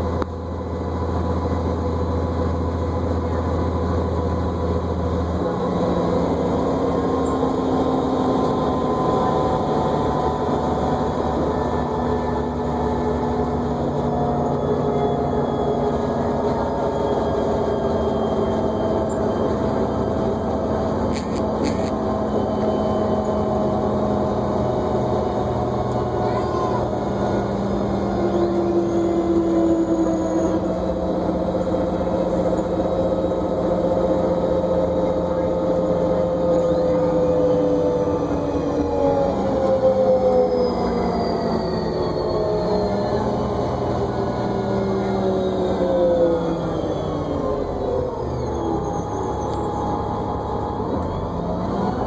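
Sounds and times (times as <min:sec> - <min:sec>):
bus drivetrain rumble: 0:00.0 - 0:52.0
multi-tone whine: 0:00.1 - 0:26.9.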